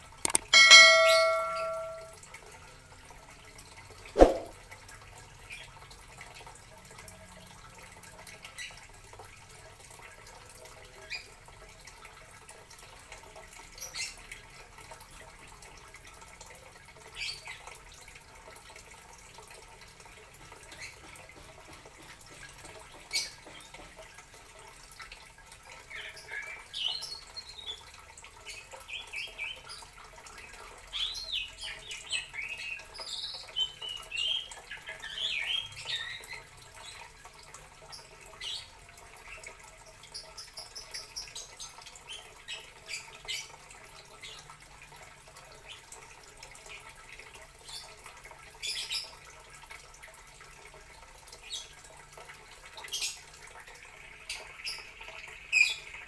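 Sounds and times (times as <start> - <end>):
sharp clicks: 0.3 - 0.5
bird chirping: 0.6 - 2.1.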